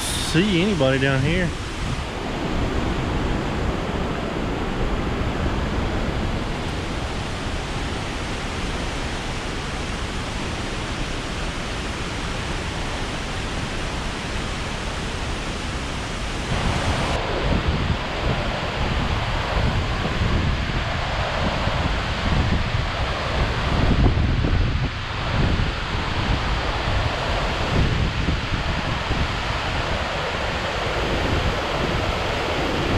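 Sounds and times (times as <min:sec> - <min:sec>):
waterfall rushing: 0:00.0 - 0:17.3.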